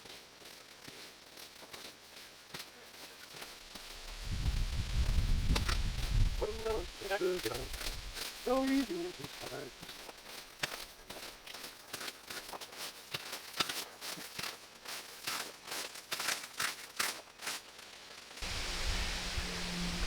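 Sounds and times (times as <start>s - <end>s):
dry twigs crackling and snapping: 3.3s - 19.8s
steady rushing noise: 3.6s - 9.7s, 18.4s - 20.0s
low hum: 18.4s - 20.0s.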